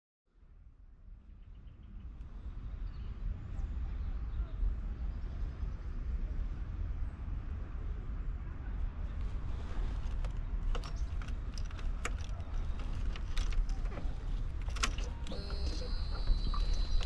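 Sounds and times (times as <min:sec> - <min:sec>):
motorcycle engine rumble: 0:09.2 - 0:17.0.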